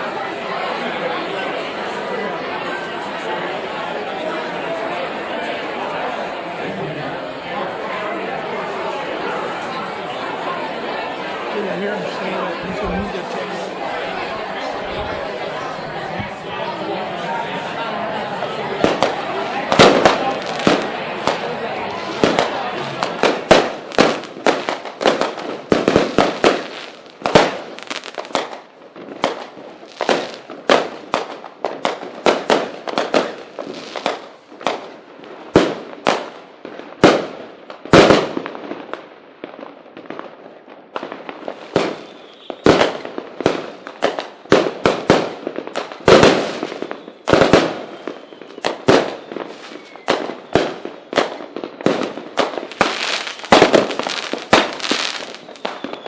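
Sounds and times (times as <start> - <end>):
fireworks bangs: 0.0 - 56.0
fireworks crackling: 0.0 - 56.0.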